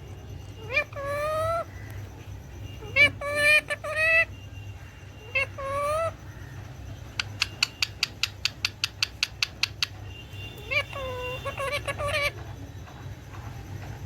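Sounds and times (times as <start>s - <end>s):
parrot calling: 0.0s - 12.6s.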